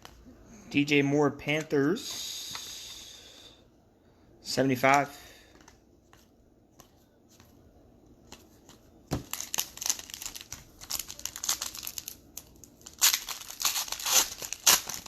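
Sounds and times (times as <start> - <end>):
plastic wrapper crinkling and tearing: 9.2 - 15.0.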